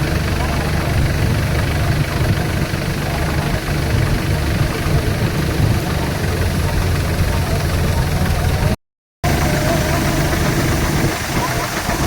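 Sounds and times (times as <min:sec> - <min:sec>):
low engine drone: 0:00.0 - 0:12.0
machinery hiss: 0:09.3 - 0:12.0.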